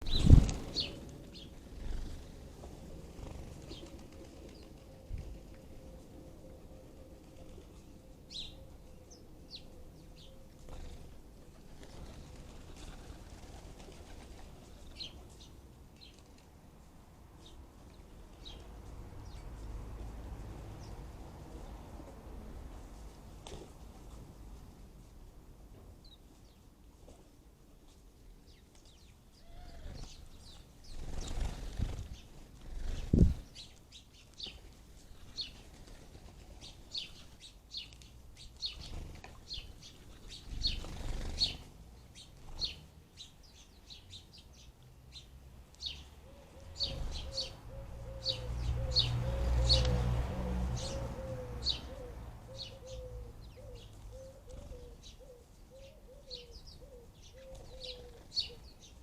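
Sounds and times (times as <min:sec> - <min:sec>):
sparrows chirping: 0:00.0 - 0:05.8, 0:06.4 - 0:11.2, 0:14.7 - 0:16.2, 0:17.4 - 0:21.8, 0:28.5 - 0:50.0, 0:50.7 - 0:59.0.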